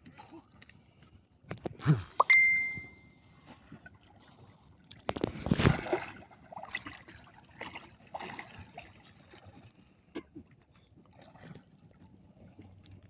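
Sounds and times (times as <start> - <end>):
water splashing and trickling: 2.2 - 10.0.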